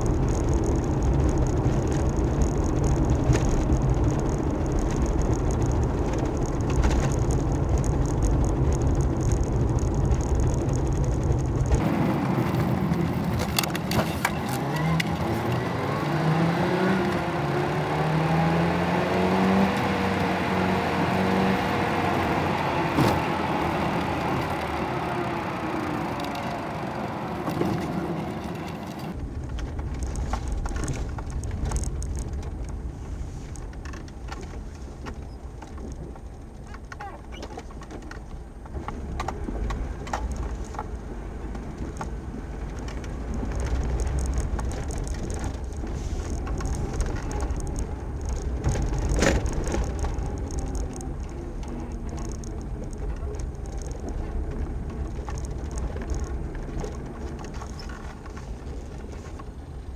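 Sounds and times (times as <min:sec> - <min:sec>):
scattered clicks: 0:00.0 - 0:26.6, 0:27.4 - 0:59.9
low rumble: 0:00.0 - 0:36.7
motor vehicle engine: 0:00.0 - 0:59.9.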